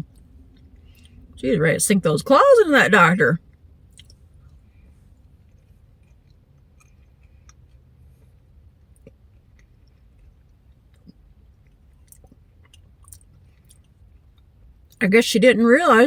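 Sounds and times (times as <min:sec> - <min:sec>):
low steady hum: 0:00.0 - 0:16.0
chewing with wet mouth clicks: 0:00.1 - 0:01.3, 0:03.5 - 0:15.0.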